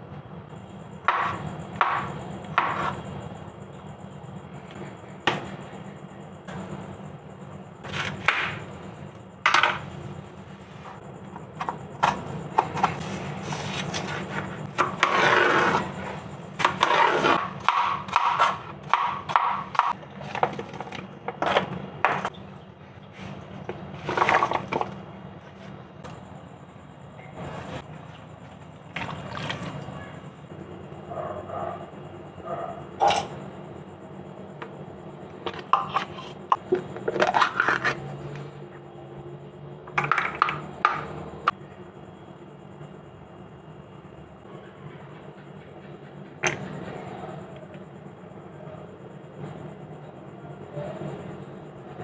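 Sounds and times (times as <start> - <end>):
utensils knocking and scraping: 35.4 - 38.1.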